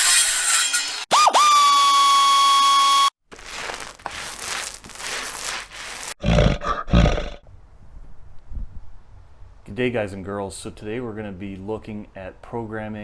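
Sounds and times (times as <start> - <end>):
crackly hissing noise: 3.3 - 6.2.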